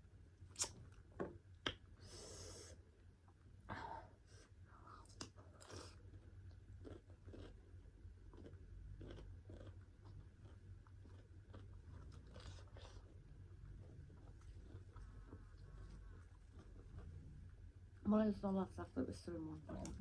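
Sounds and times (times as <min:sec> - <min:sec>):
person chewing food: 0:04.7 - 0:17.9.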